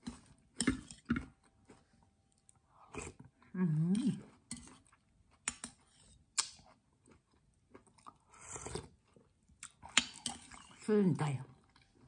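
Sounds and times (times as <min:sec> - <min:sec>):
slurp from a spoon: 0:08.1 - 0:09.0.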